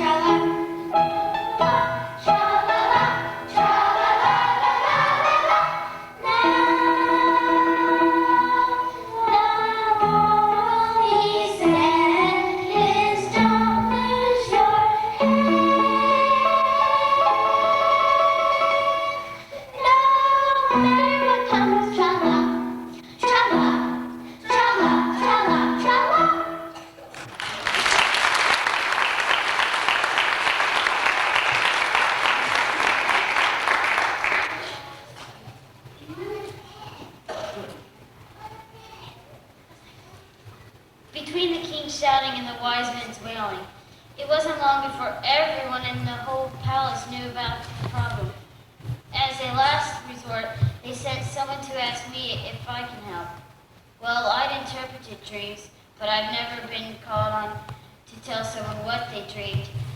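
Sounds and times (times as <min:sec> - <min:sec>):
group singing with held notes: 0:00.0 - 0:26.8
musical accompaniment: 0:00.0 - 0:27.1
audience applauding: 0:27.0 - 0:35.2.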